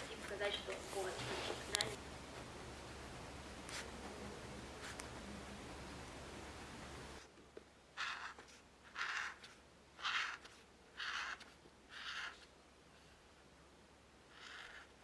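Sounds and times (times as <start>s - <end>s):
drawing tool strokes on paper: 8.0s - 13.2s, 14.3s - 15.0s.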